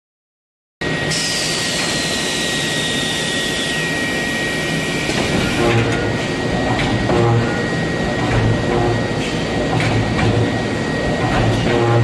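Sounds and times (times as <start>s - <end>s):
machinery high whine: 0.8s - 12.0s
whine falling in pitch: 5.6s - 12.0s.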